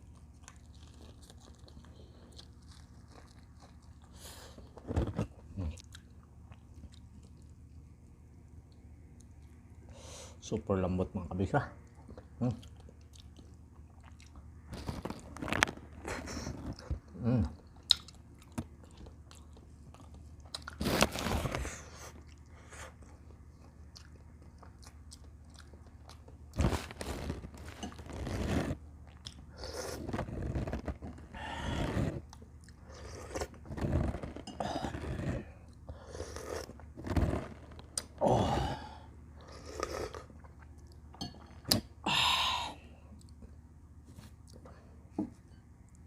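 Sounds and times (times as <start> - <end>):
close chewing and biting: 0.0 - 7.9, 11.8 - 38.2.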